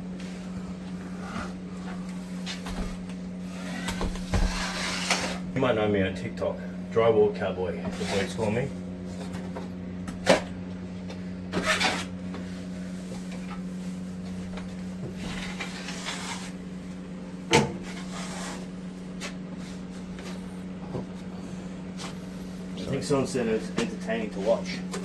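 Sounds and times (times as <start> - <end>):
steady low hum: 0.0 - 25.0
scraping sounds: 3.5 - 5.4, 7.9 - 8.5.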